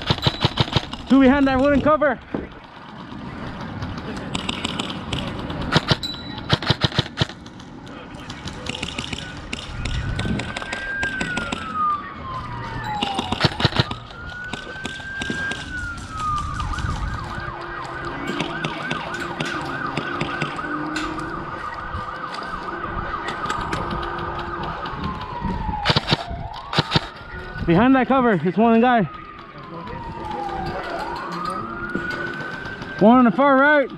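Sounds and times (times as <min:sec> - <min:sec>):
siren wailing and yelping: 0:09.4 - 0:33.9
airsoft guns snapping: 0:25.8 - 0:27.1.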